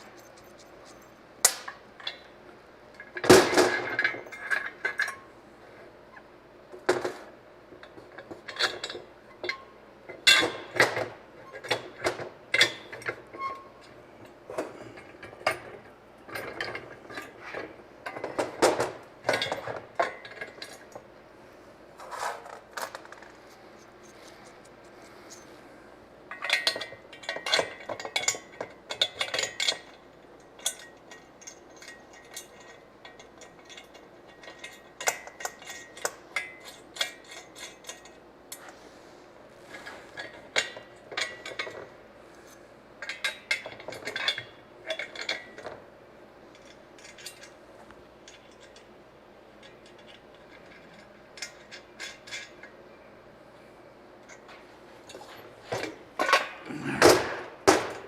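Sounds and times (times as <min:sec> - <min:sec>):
metal parts clinking: 0:00.0 - 0:02.3, 0:26.3 - 0:38.7, 0:39.7 - 0:45.8, 0:46.5 - 0:47.6, 0:49.6 - 0:52.8.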